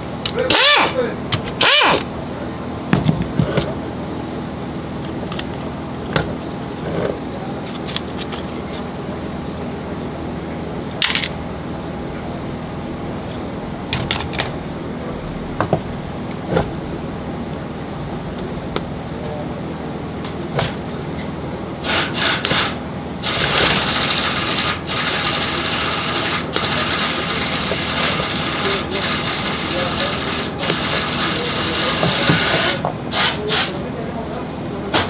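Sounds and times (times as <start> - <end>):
steady hum: 0.0 - 35.0
harsh rasping noise: 21.8 - 33.8.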